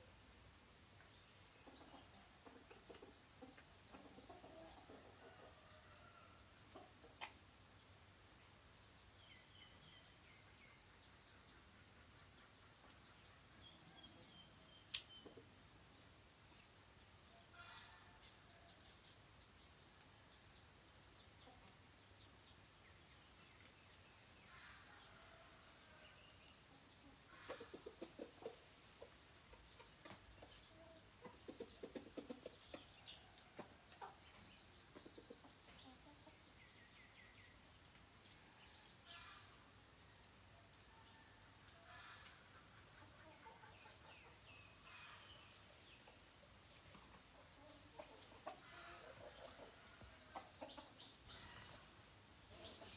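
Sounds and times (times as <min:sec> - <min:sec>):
chickens clucking: 0:01.6 - 0:05.5, 0:27.0 - 0:36.4, 0:46.0 - 0:51.9.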